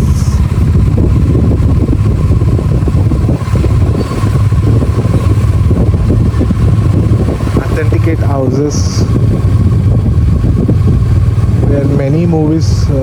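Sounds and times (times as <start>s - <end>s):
motorcycle engine rumble: 0.0s - 13.0s.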